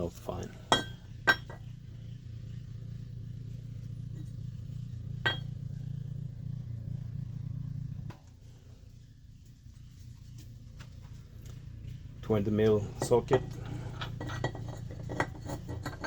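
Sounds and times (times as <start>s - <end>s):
steady low hum: 0.0s - 16.0s
metallic clinks: 0.6s - 1.7s.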